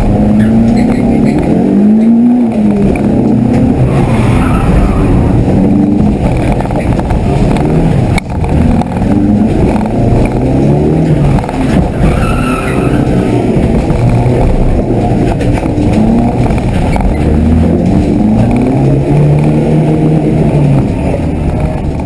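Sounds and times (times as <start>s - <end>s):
car engine revving: 0.0s - 22.0s
tyres squealing: 0.2s - 2.3s, 11.1s - 14.4s.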